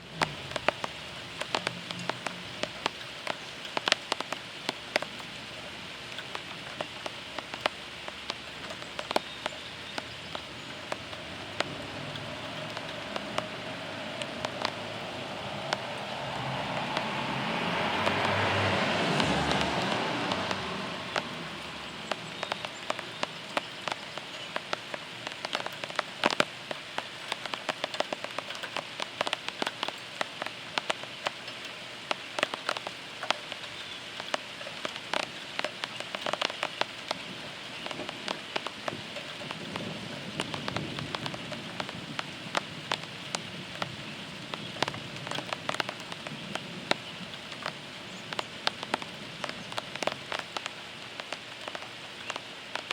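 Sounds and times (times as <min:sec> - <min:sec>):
heavy rain: 0:00.0 - 0:52.9
raindrops ticking on hard surface: 0:00.0 - 0:52.9
thunder rumble: 0:10.8 - 0:22.2, 0:38.8 - 0:47.9.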